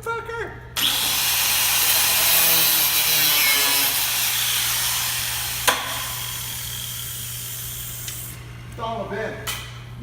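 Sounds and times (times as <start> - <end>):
power tool cutting metal: 0.8 - 7.1.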